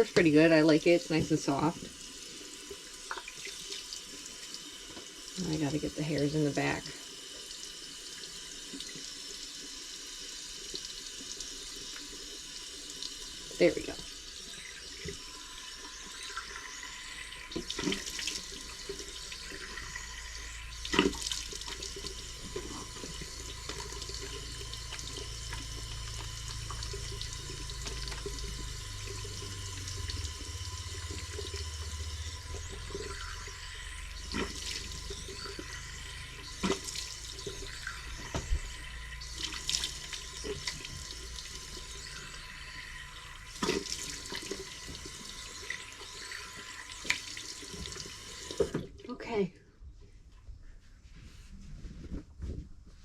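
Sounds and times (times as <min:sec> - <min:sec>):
tap running into sink: 0:20.8 - 0:31.7, 0:36.4 - 0:41.2.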